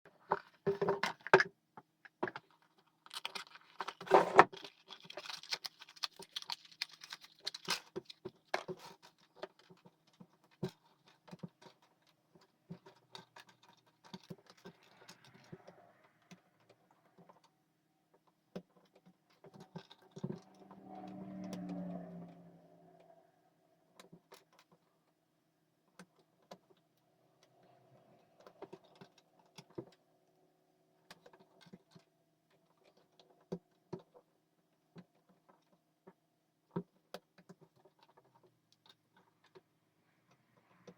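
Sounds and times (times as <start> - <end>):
small hard objects clicking: 2.1 - 15.7.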